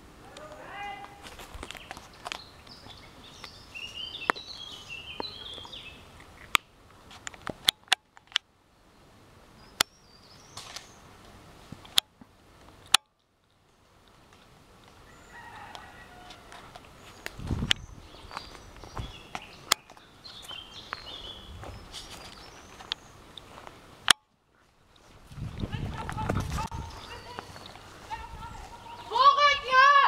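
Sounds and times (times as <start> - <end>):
birds singing: 0.3 - 6.8, 8.7 - 11.2, 14.9 - 23.8, 24.8 - 30.0
sharp single clicks: 12.8 - 13.3, 24.0 - 24.3.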